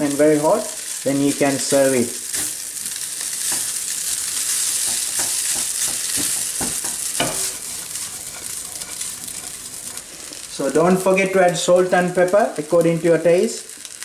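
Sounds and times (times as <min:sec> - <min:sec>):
rice sizzling in a wok: 0:00.0 - 0:14.0
spatula scraping a pan: 0:03.4 - 0:10.3.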